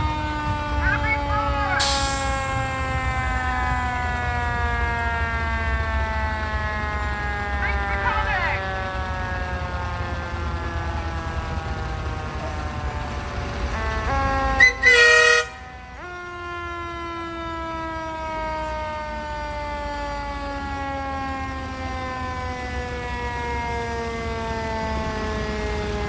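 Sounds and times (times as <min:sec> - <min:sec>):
fire truck siren winding: 0:00.0 - 0:04.4, 0:10.2 - 0:16.3
air horn blasts: 0:01.1 - 0:03.1, 0:13.8 - 0:15.8.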